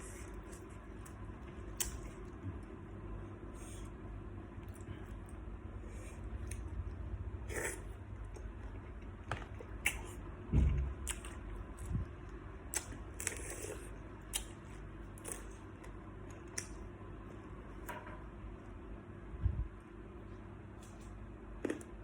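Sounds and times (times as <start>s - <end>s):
crunchy eating: 0.0s - 17.6s
dull thump: 10.5s - 10.9s.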